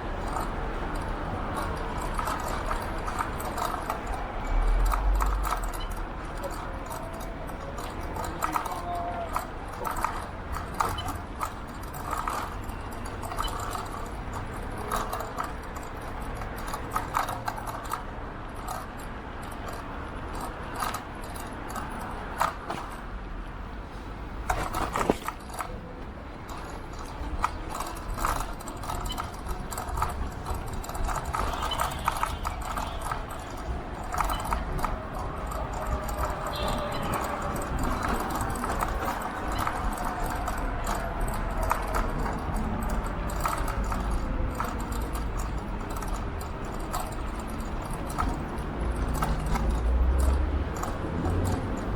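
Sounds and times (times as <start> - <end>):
scooter rattling and clicking: 0.0 - 51.9.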